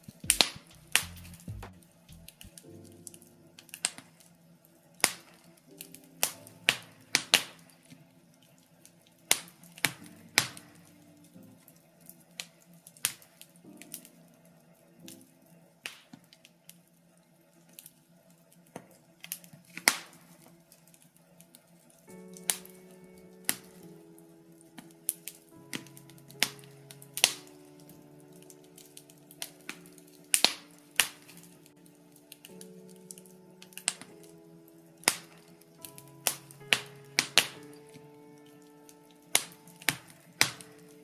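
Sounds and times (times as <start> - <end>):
sharp pops and snaps of fire: 0.0 - 3.2, 22.3 - 22.8, 24.8 - 34.4, 35.0 - 41.0
logs crackling in a fireplace: 0.0 - 41.0.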